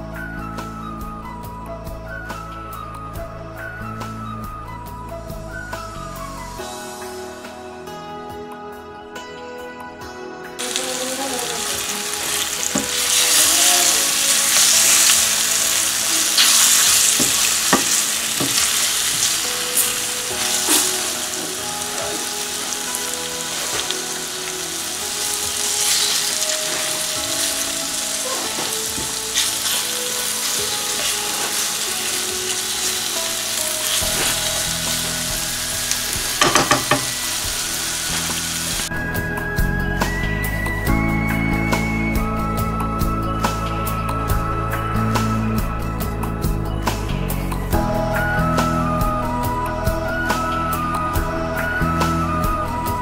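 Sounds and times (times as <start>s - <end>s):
chicken sizzling in hot oil: 10.6s - 38.9s
spatula knocking and scraping pan: 36.4s - 37.2s.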